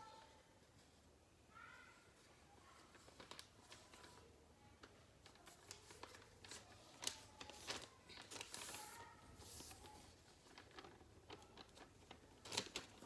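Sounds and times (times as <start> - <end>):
paper being folded and creased: 2.8 - 13.0.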